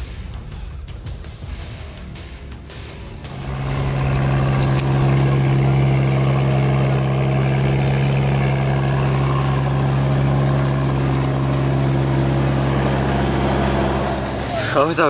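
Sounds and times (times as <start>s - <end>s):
engine idling: 3.2s - 15.0s.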